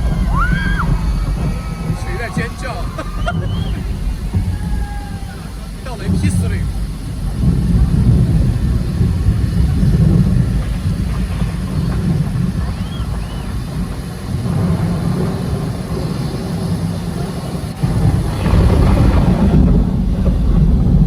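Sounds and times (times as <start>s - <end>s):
crowd noise: 0.0s - 21.0s
steady low rumble: 0.0s - 21.0s
short whistles: 3.0s - 5.4s, 12.6s - 13.6s.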